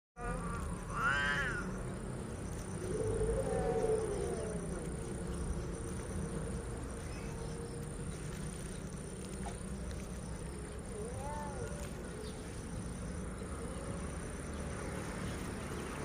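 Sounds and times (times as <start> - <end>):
cats growling and yowling: 0.2 - 5.7, 10.4 - 12.7.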